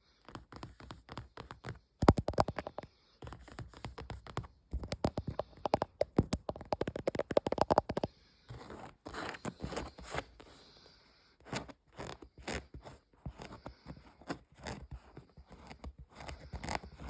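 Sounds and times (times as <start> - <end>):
fast tapping on objects: 0.3 - 8.7.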